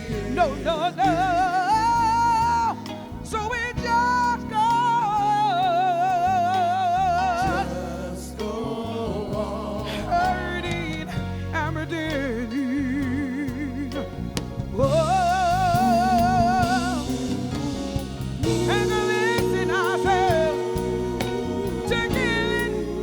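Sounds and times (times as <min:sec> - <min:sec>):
live soul band playing: 0:00.0 - 0:23.0
singer holding long vibrato notes: 0:14.8 - 0:23.0.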